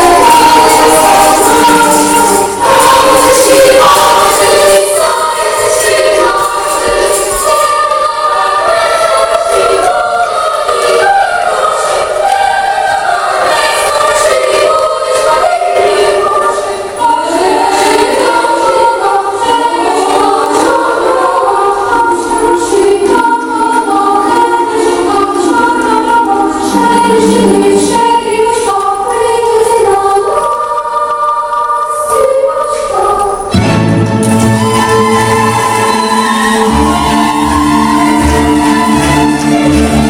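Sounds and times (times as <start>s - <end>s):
choir singing: 0.0s - 40.0s.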